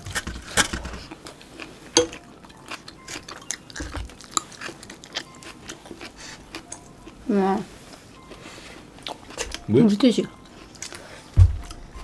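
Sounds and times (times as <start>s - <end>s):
chewing and wet mouth clicks: 9.0s - 9.6s, 10.5s - 11.0s.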